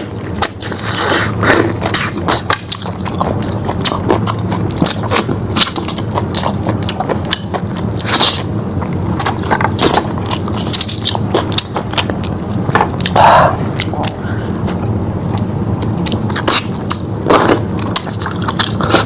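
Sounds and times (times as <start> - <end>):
low hum: 0.0 - 19.0
wet chewing: 0.0 - 19.0.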